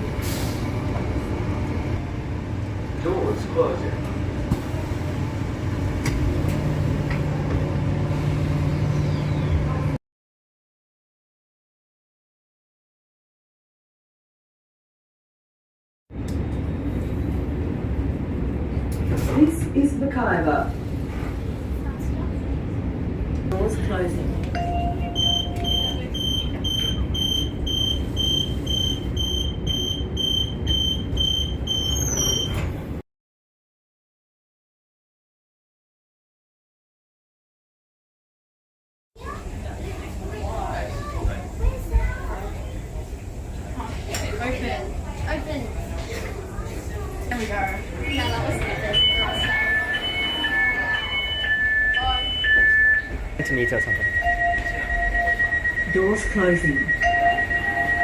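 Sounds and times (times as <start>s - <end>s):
low hum of train: 0.0s - 10.0s, 16.1s - 33.0s, 39.2s - 58.0s
door warning beeps: 24.6s - 32.7s, 47.6s - 58.0s
train doors clunking shut: 31.1s - 33.0s.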